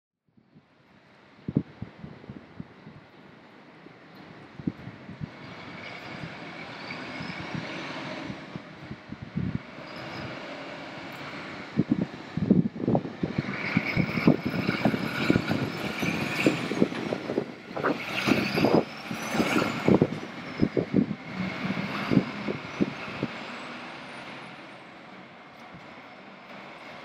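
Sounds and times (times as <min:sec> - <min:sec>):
fire truck engine and road noise: 0:00.3 - 0:27.0
wind on microphone: 0:01.4 - 0:03.2, 0:04.4 - 0:10.4, 0:11.5 - 0:23.5.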